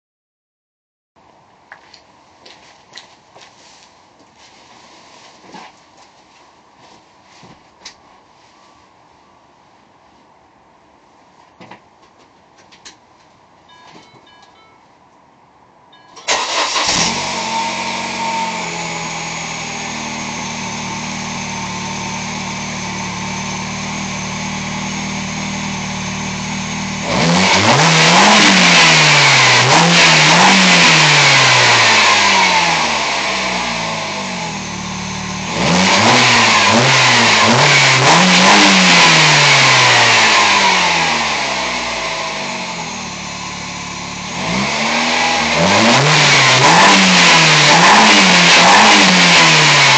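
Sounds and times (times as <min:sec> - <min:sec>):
car engine revving: 0:16.3 - 0:49.9.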